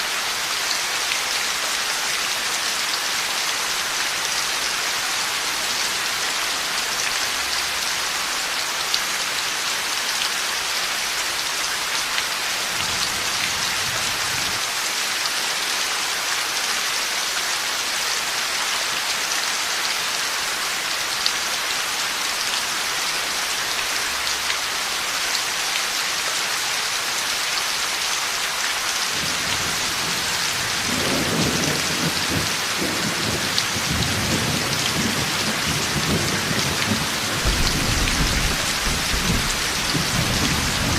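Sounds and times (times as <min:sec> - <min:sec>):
heavy rain falling: 0:00.0 - 0:40.9
rumble of thunder: 0:29.2 - 0:40.9.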